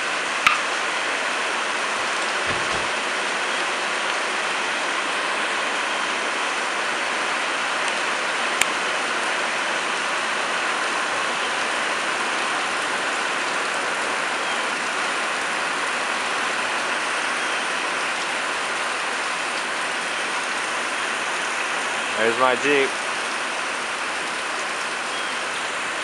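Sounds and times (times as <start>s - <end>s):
rain pouring: 0.0s - 26.0s.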